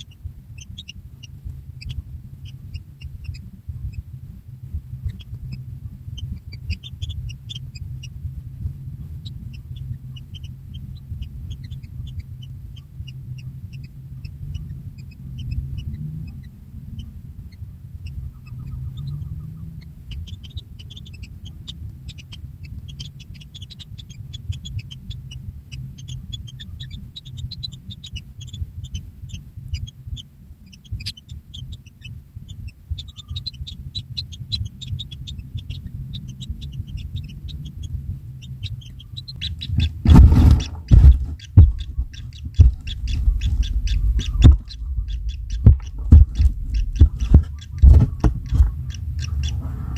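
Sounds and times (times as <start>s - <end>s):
chicks squeaking and chirping: 0.0s - 49.9s
low rumble: 35.8s - 49.9s.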